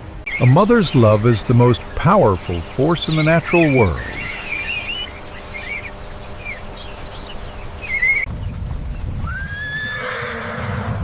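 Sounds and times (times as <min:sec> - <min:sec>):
birds chirping: 0:00.0 - 0:10.4
faint outdoor ambience: 0:00.0 - 0:11.0
rising animal call: 0:09.2 - 0:11.0.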